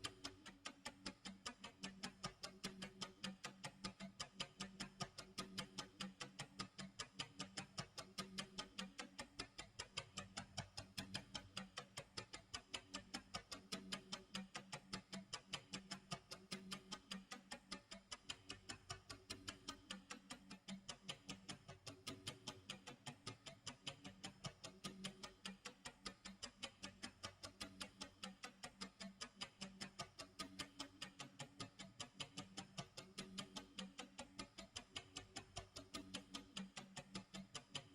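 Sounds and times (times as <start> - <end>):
clock ticking: 0.0 - 37.9.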